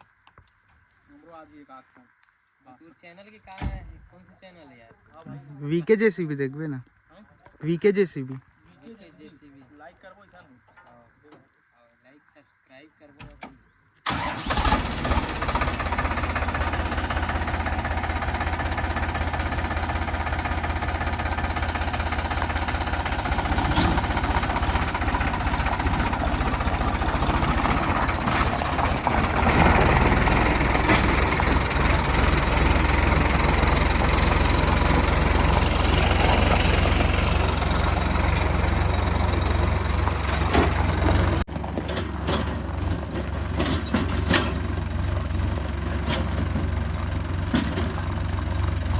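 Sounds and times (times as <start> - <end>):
heavy diesel machinery engine: 14.1 - 48.9.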